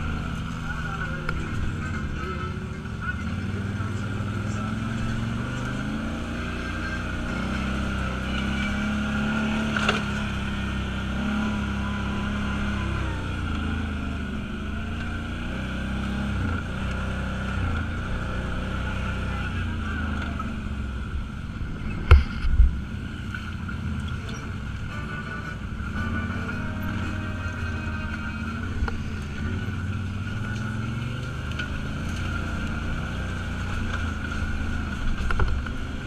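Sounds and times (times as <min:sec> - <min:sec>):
off-road vehicle engine running: 0:00.0 - 0:36.0.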